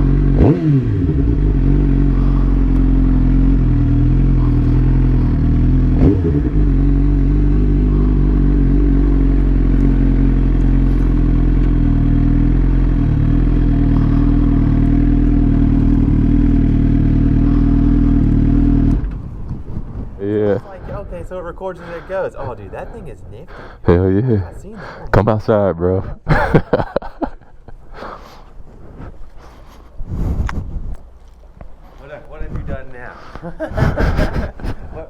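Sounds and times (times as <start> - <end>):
motorcycle engine running: 0.0 - 19.8.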